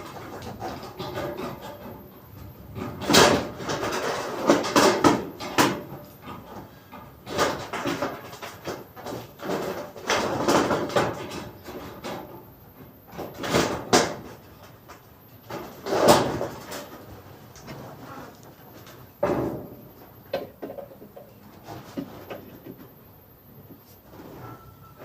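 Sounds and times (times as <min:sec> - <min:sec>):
hard objects knocking and scraping: 0:19.1 - 0:23.0.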